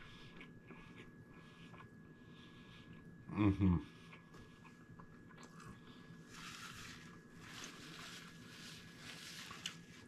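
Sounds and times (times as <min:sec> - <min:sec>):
faint chewing with mouth closed: 0:00.0 - 0:03.2, 0:03.8 - 0:06.4
faint steady hum: 0:00.0 - 0:10.0.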